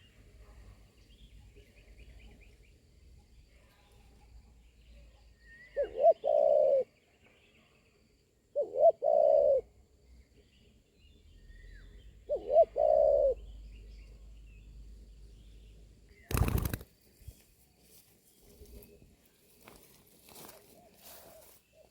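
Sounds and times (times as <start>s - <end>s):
small birds chirping: 0.0s - 21.9s
dove cooing: 5.7s - 6.9s, 8.6s - 9.7s, 12.2s - 13.4s.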